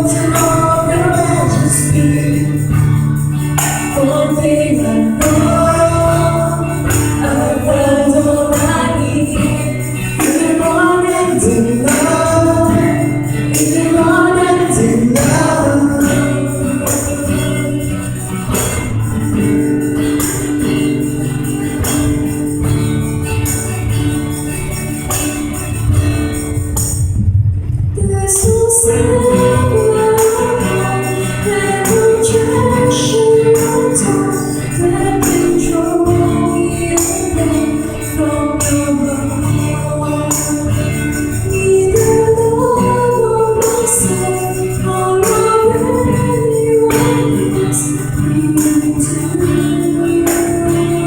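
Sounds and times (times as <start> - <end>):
people singing: 0.0 - 25.3, 28.0 - 51.0
church band playing worship song: 0.0 - 27.2, 28.1 - 51.0
jingling percussion: 0.0 - 27.2, 28.3 - 51.0.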